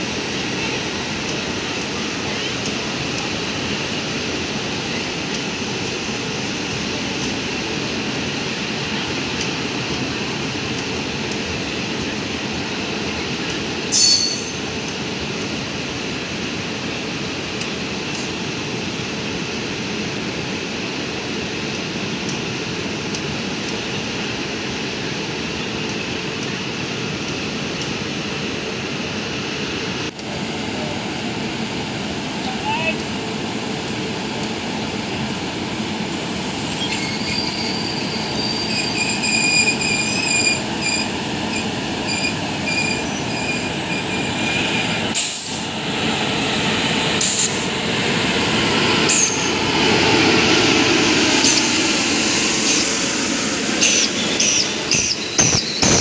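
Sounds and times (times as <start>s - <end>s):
train wheels on rails: 0.0s - 56.0s
high-pitched wheel squeal: 36.7s - 44.6s.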